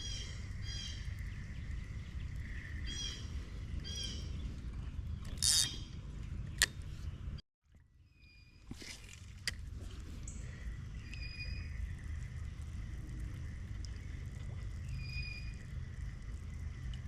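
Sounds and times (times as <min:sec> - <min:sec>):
spinning reel whine: 0:00.0 - 0:05.8, 0:10.2 - 0:17.0
low rumble: 0:00.0 - 0:07.4, 0:09.4 - 0:17.0.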